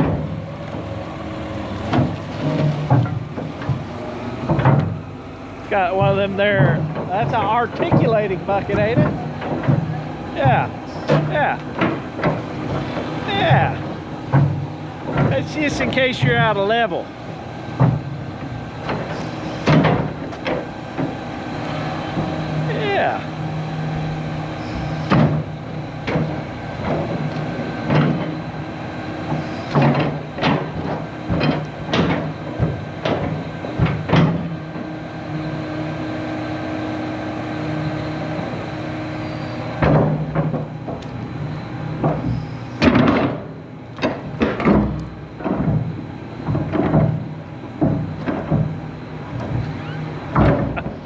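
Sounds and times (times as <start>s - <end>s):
metal clunks and knocks: 0.0s - 1.0s, 1.8s - 5.0s, 5.8s - 17.0s, 17.7s - 21.3s, 24.8s - 28.5s, 29.2s - 34.9s, 39.7s - 51.0s
excavator diesel engine running: 0.0s - 51.0s.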